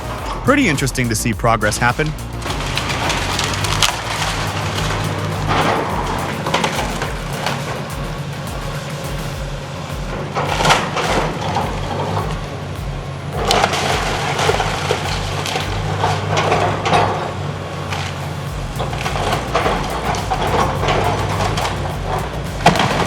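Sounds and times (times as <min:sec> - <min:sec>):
low machinery drone: 0:00.0 - 0:23.0
wood and debris crunching: 0:02.4 - 0:07.8, 0:10.1 - 0:23.0.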